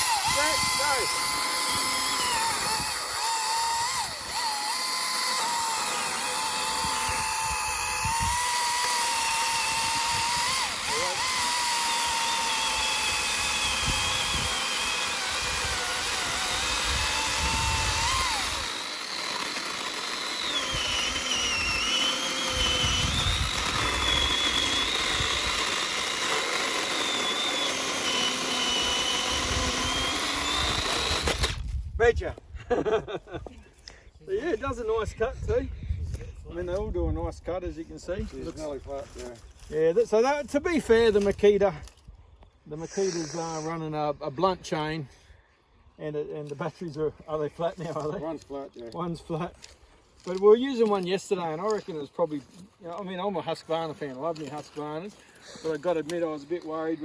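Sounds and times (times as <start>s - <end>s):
chainsaws cutting wood: 0.0s - 31.8s, 42.8s - 43.7s, 47.7s - 57.0s.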